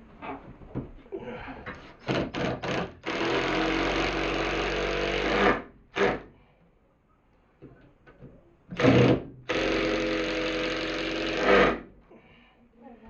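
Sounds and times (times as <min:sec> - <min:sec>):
impact driver driving a screw: 0:02.0 - 0:06.2, 0:08.7 - 0:11.8.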